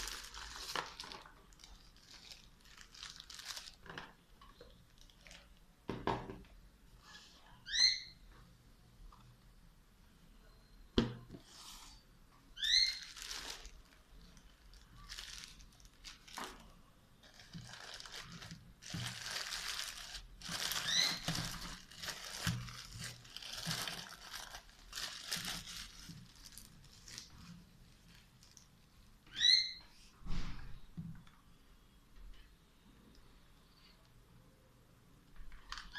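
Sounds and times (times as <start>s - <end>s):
packaging crinkling: 0.0s - 5.6s, 12.7s - 28.7s.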